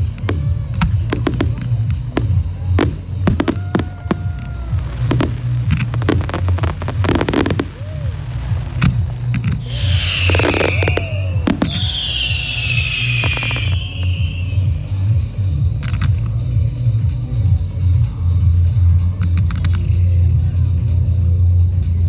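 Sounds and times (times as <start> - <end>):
falling hissing firework whine: 0.0 - 16.3
fireworks bangs and crackles: 0.0 - 17.6.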